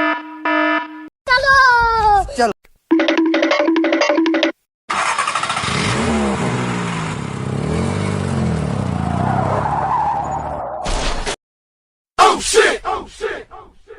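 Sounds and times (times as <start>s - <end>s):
vehicle engines revving: 4.9s - 10.8s.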